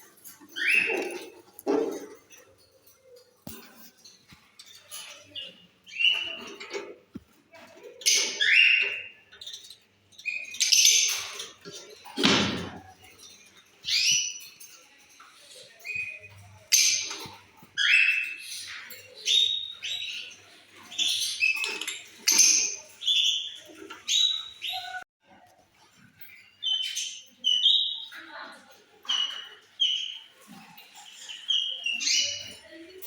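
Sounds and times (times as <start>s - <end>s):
lovebirds chirping: 0.0s - 6.8s.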